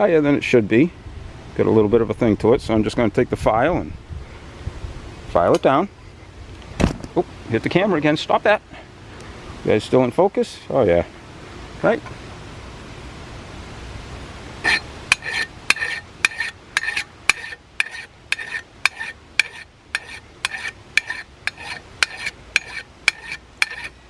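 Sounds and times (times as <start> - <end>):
file scraping metal: 14.6 - 24.0.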